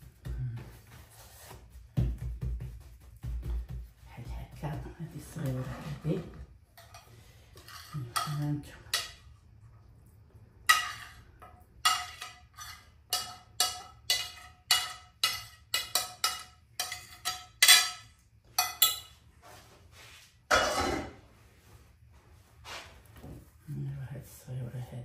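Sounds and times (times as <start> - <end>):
rustling scrape: 5.2 - 6.4, 19.4 - 20.4, 21.0 - 23.2.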